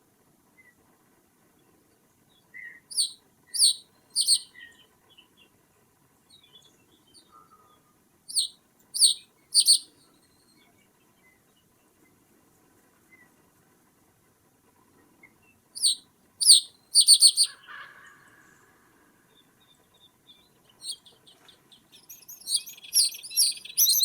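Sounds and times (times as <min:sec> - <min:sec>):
faint bird chirps: 0:02.5 - 0:05.5, 0:06.3 - 0:12.2, 0:15.4 - 0:18.6, 0:19.3 - 0:24.0.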